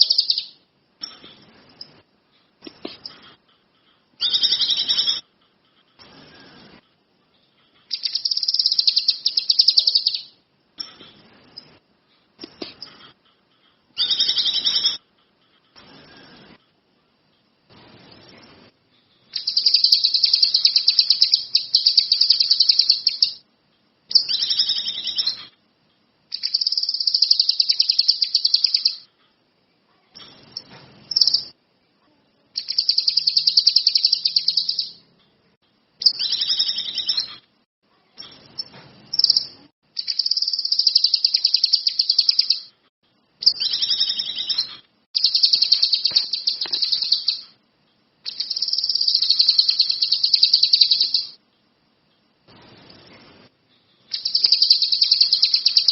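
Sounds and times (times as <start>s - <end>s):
songbird high trilled song: 0.0s - 0.6s, 4.2s - 5.2s, 7.9s - 10.4s, 14.0s - 15.0s, 19.4s - 23.4s, 24.1s - 25.5s, 26.3s - 29.0s, 32.6s - 35.0s, 36.0s - 37.4s, 38.6s - 42.7s, 43.4s - 47.6s, 48.3s - 51.4s, 54.1s - 55.9s.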